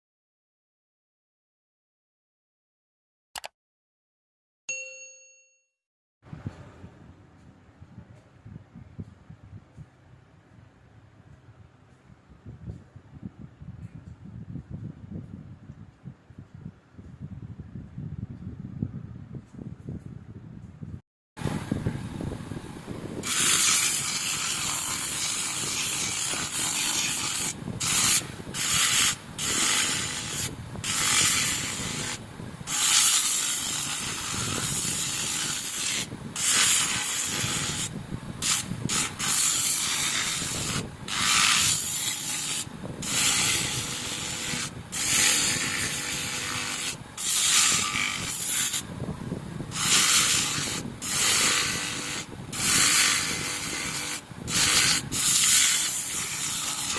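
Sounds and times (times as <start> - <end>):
sanding scraping hiss: 23.2 - 48.9, 49.7 - 56.9.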